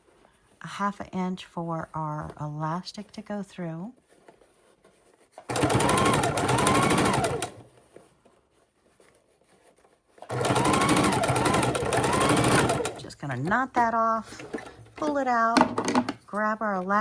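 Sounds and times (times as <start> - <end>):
sewing machine stitching: 5.4 - 7.8, 10.1 - 15.1
sewing machine motor whine: 5.5 - 7.6, 10.3 - 13.1.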